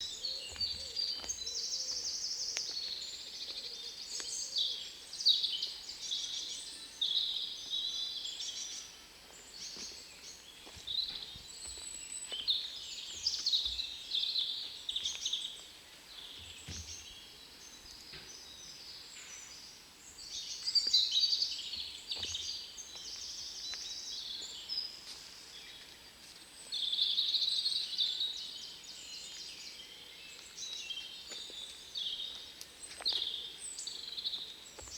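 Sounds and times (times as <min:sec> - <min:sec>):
birds singing and trilling: 0:00.0 - 0:34.9.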